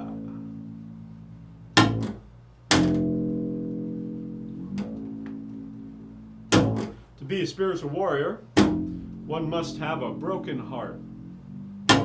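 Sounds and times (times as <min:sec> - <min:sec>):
plucked string instrument chords: 0:00.0 - 0:12.0.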